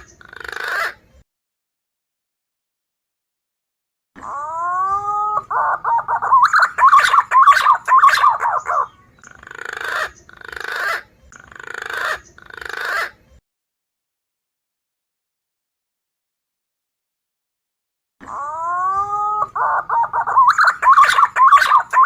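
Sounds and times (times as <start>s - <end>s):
pigeon whistling call: 4.4s - 9.0s, 18.5s - 22.0s.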